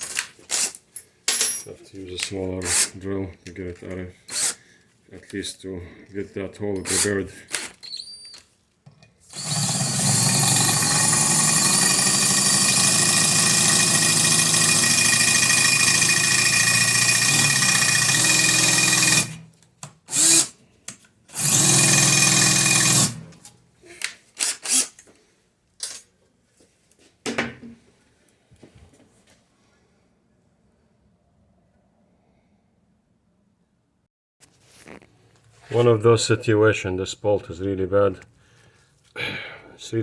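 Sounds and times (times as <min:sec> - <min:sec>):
power drill boring: 0:09.3 - 0:19.4, 0:20.1 - 0:20.6, 0:21.3 - 0:23.3, 0:24.4 - 0:24.9.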